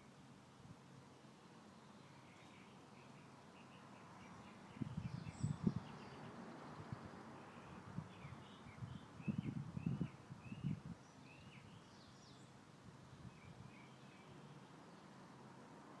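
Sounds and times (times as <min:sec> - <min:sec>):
songbird chirping: 0:01.0 - 0:15.4
wind buffeting microphone: 0:04.7 - 0:06.0, 0:07.8 - 0:11.0.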